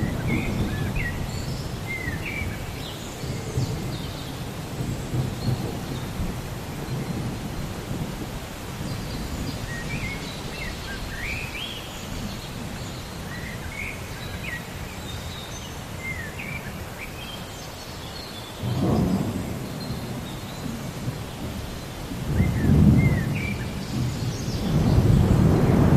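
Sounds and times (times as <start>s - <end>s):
thunder rumbling: 0.0s - 11.3s, 18.6s - 25.9s
steady rain: 0.0s - 25.9s.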